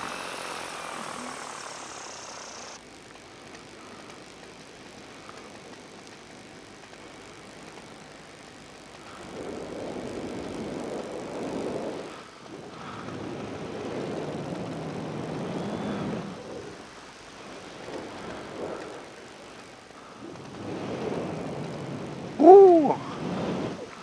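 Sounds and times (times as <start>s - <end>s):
paramotor engine and propeller: 0.0s - 22.4s
wind rushing over microphone: 20.2s - 24.0s.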